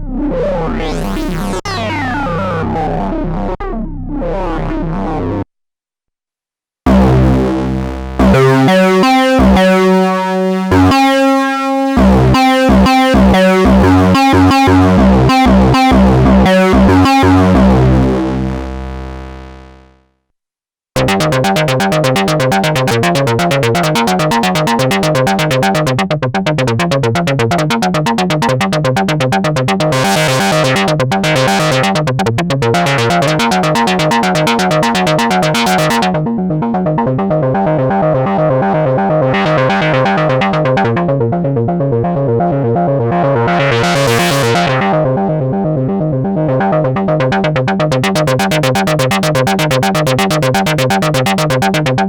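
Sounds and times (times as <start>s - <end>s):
synthesizer notes: 6.9s - 19.9s, 21.0s - 36.3s, 39.3s - 41.1s, 42.7s - 45.0s, 46.9s - 52.0s
fast repeating synthesizer pattern: 6.9s - 20.0s, 21.0s - 36.2s, 39.3s - 41.1s, 43.1s - 45.0s, 46.9s - 52.0s.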